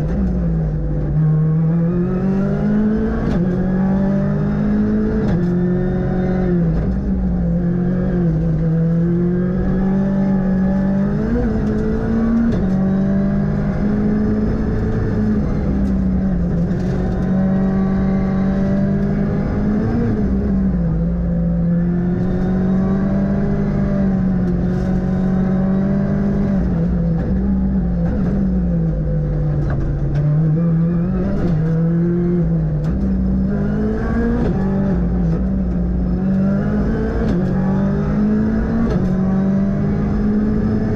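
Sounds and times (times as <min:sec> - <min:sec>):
rally car engine revving: 0:00.0 - 0:40.9.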